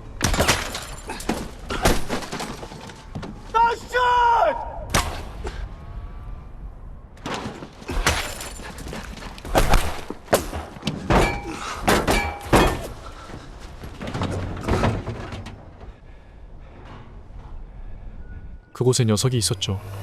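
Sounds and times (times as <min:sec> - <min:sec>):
heavy metallic thuds and clanks: 0:07.2 - 0:16.0.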